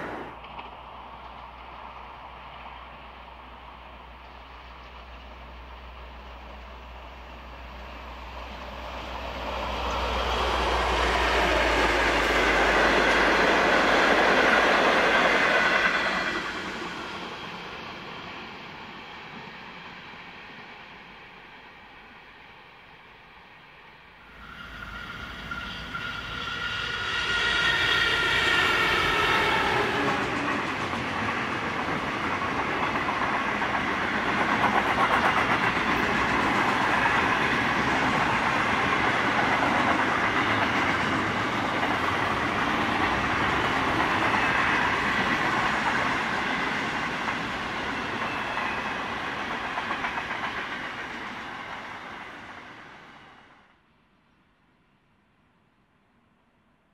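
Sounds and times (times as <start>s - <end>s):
train wagons clickety-clack: 0.0s - 7.9s, 25.0s - 52.8s
diesel locomotive passing: 0.0s - 53.8s.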